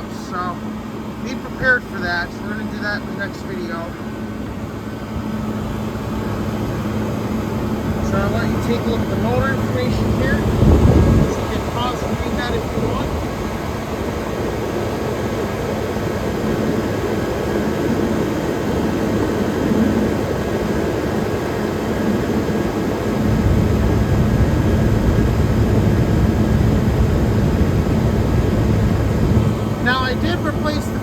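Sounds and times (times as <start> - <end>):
air conditioner fan rushing air: 0.0 - 31.0
compressor hum: 0.0 - 31.0.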